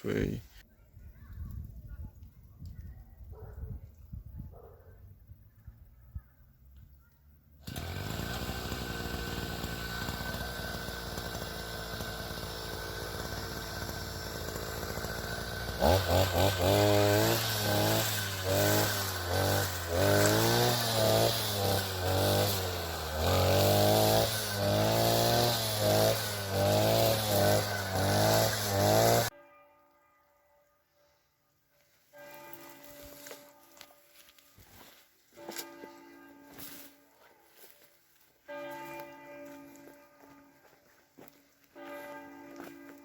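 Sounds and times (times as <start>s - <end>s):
brush cutter running: 7.6s - 29.3s.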